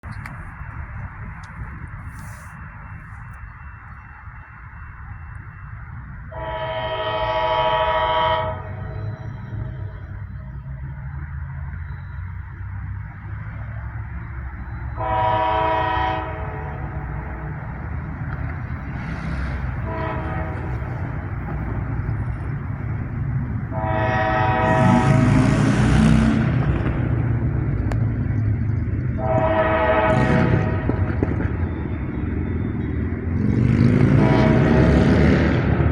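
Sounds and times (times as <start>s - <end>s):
freight train rumbling: 0.0s - 35.9s
locomotive air horn blasts: 6.3s - 10.1s, 14.9s - 17.2s, 19.2s - 21.3s, 23.6s - 26.6s, 29.2s - 31.1s, 34.0s - 35.3s.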